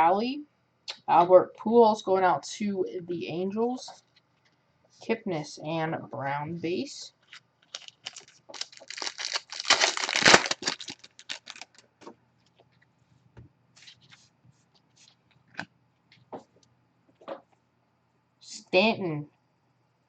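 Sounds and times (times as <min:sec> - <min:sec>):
wrapper tearing and crinkling: 0:07.2 - 0:11.8.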